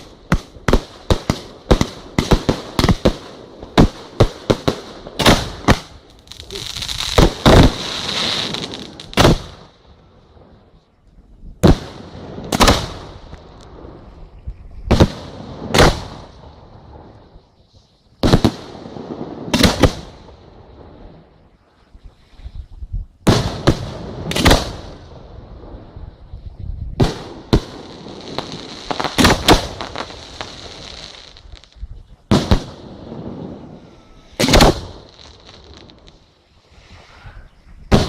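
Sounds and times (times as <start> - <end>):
fireworks hissing crackle: 0.0 - 9.8, 25.8 - 38.0
fireworks booming: 0.0 - 10.5, 11.5 - 17.4, 18.2 - 21.4, 23.2 - 36.2.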